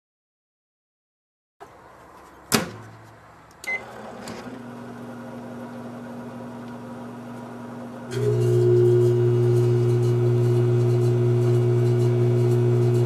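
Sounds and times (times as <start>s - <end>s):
microwave oven humming: 3.6s - 13.0s
keypad beep: 3.7s - 3.9s.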